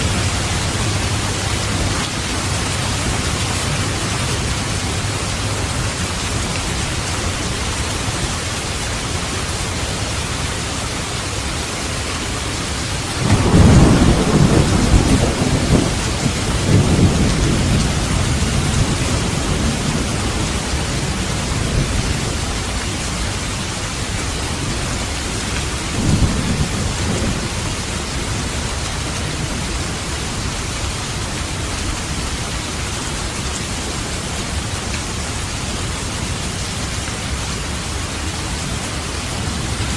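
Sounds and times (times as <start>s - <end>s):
heavy rain: 0.0s - 39.9s
thunder rumbling: 13.2s - 23.7s, 24.3s - 29.8s.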